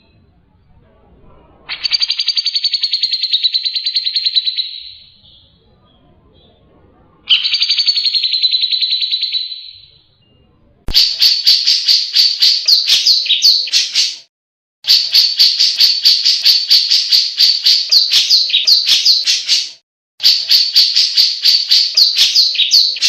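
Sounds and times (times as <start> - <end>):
bird trilling: 1.7 - 5.4, 7.3 - 10.0, 10.9 - 14.3, 14.9 - 23.0
bird sharp notes: 7.3 - 14.3, 14.9 - 23.0.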